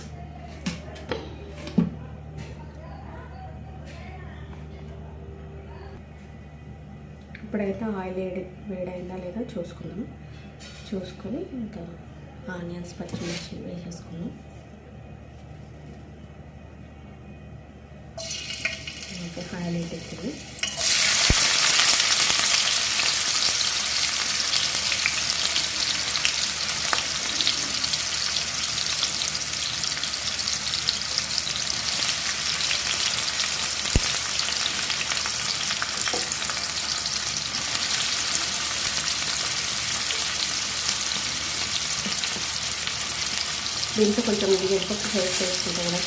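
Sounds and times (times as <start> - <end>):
onions sizzling in hot oil: 18.2 - 46.0.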